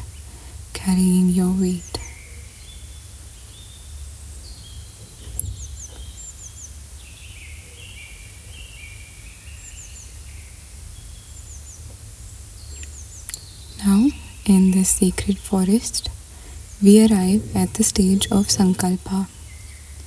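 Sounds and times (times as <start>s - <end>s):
small birds chirping: 0.0s - 20.0s
low steady rumble: 13.3s - 20.0s.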